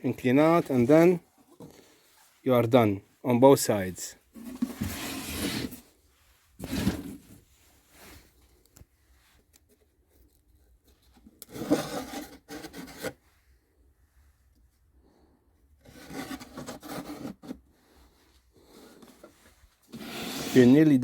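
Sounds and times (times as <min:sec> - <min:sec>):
wood scraping against wood: 0:04.3 - 0:05.8, 0:06.6 - 0:07.4, 0:15.8 - 0:17.6, 0:18.6 - 0:21.0.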